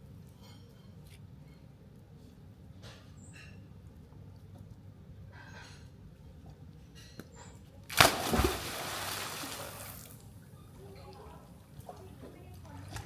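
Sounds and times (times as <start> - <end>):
loud splash in pool: 7.9 - 10.2.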